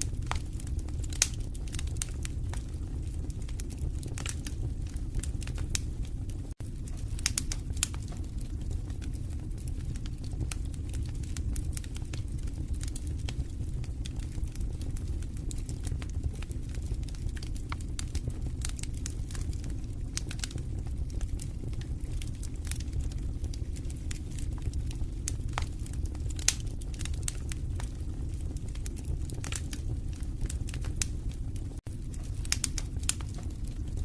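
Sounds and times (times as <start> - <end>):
wood fire crackling and popping: 0.0 - 34.0.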